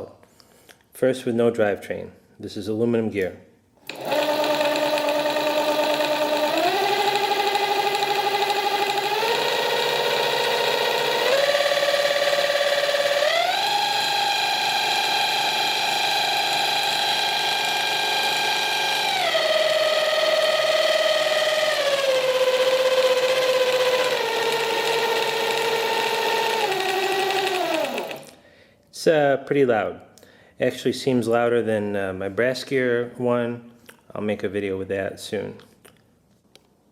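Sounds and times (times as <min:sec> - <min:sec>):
electric motor gear whine: 0:03.9 - 0:28.3.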